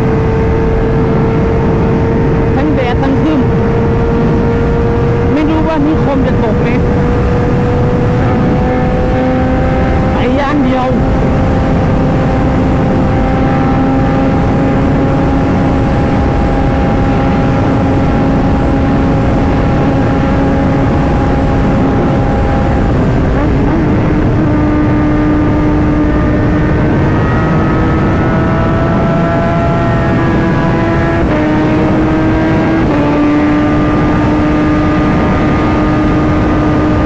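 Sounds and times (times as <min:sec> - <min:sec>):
motorcycle engine cruising: 0:00.0 - 0:37.0
wind noise rushing: 0:00.0 - 0:37.0.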